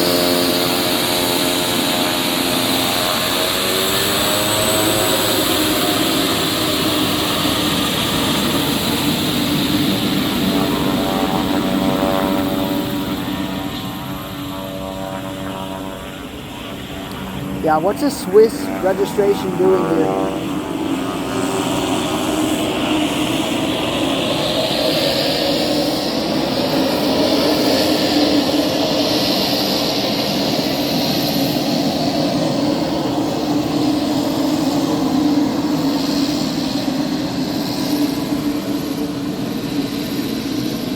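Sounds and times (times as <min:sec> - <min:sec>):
high turbine whine: 0:00.0 - 0:40.9
propeller hum: 0:00.0 - 0:40.9.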